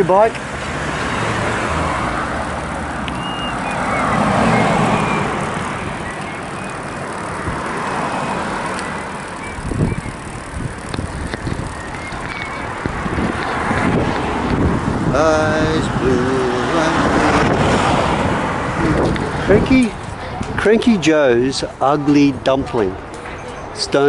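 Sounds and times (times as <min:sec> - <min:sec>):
car passing: 0:00.0 - 0:23.2
road traffic noise: 0:00.0 - 0:24.0
wind buffeting microphone: 0:01.3 - 0:23.1
short high chirps: 0:03.1 - 0:04.2.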